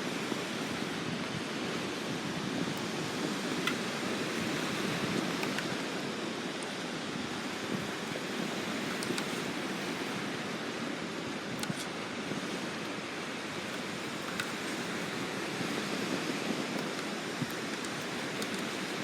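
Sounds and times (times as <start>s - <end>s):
wood fire burning: 1.7s - 19.0s
burning wood crackles: 11.3s - 19.0s.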